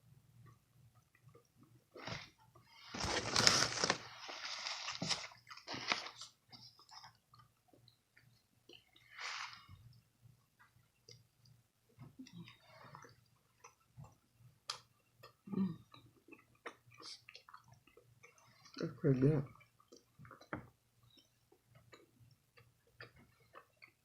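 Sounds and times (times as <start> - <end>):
person chewing with wet smacks: 0.4 - 2.7, 5.2 - 9.2, 9.8 - 24.0
breath through the nose: 9.1 - 9.8.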